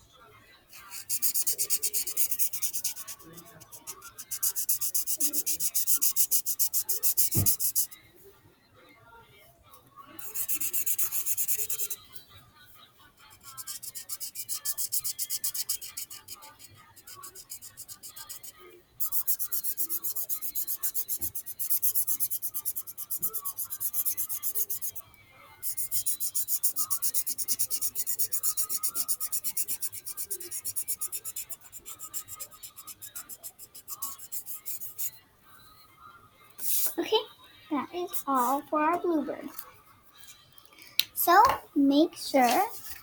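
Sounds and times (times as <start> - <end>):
colouring strokes scratching paper: 0.7 - 7.9, 10.2 - 12.1, 13.2 - 25.0, 25.6 - 35.2, 36.6 - 37.0, 37.8 - 39.6, 42.4 - 43.0.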